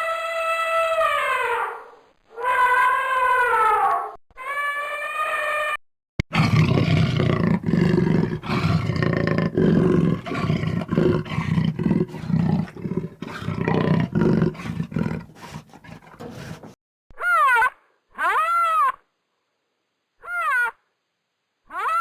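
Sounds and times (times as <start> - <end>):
large animal roaring and growling: 6.3 - 16.8.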